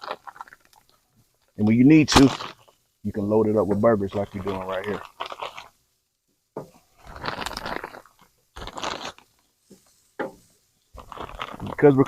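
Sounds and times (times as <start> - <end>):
frozen patties crunching: 0.0 - 1.0, 1.6 - 5.7, 7.0 - 9.4, 11.0 - 12.0.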